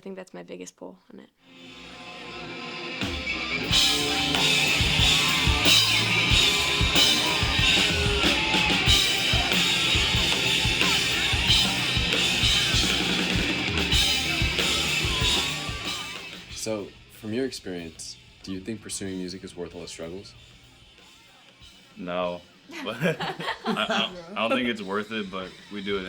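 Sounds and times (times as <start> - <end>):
rock music: 1.4 - 26.0
cymbals ringing: 3.6 - 17.3
drum hits: 3.7 - 16.7.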